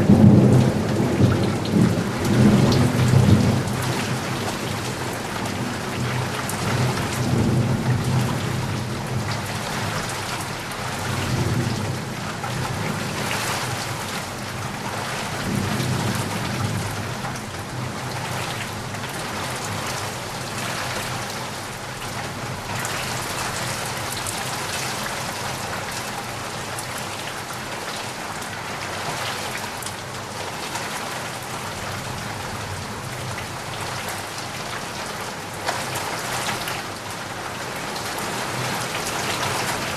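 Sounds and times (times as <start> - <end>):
thunder rumbling: 0.0 - 5.8
heavy rain: 0.0 - 39.9.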